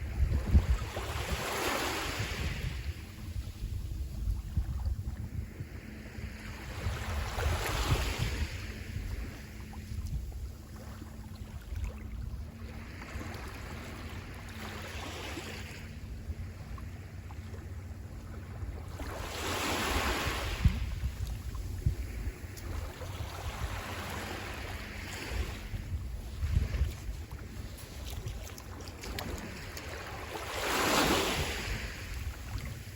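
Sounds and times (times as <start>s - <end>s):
wind rumbling on microphone: 0.0s - 32.9s
sea waves washing onto shore: 18.9s - 32.9s.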